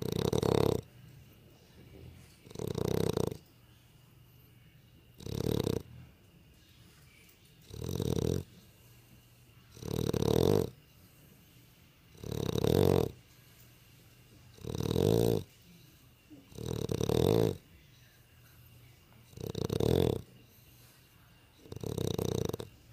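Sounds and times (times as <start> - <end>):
dog snoring: 0.0 - 1.0, 1.8 - 3.5, 5.1 - 6.2, 7.6 - 13.7, 14.5 - 17.8, 18.4 - 22.9.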